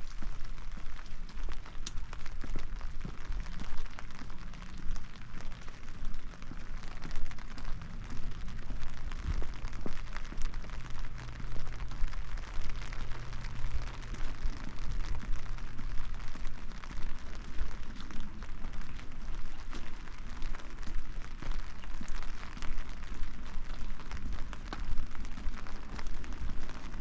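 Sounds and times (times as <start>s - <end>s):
steady rain pattering: 0.0s - 27.0s.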